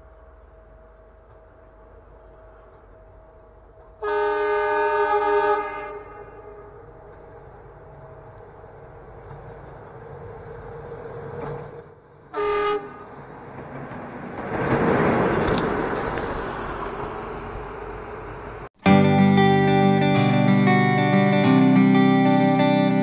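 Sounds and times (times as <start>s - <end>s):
train wheel and rail noise: 0.0s - 18.8s
train horn blast: 4.0s - 6.9s, 12.3s - 13.2s.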